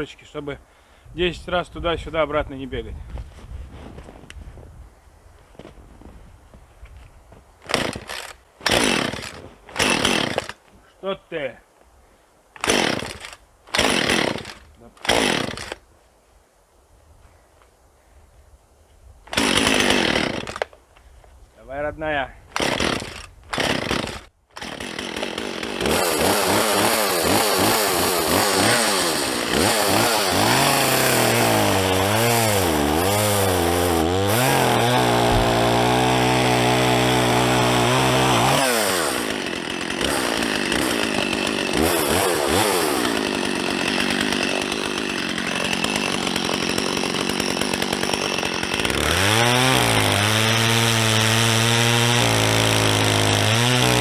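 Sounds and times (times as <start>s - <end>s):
chainsaw cutting log: 7.6s - 10.6s, 12.6s - 15.8s, 19.3s - 20.8s, 22.5s - 54.0s.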